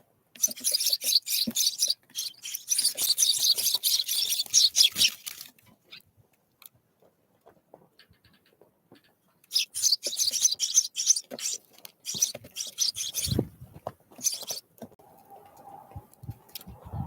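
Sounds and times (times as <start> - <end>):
bird cracking seeds: 0.4 - 5.8, 9.5 - 13.5, 14.1 - 14.6.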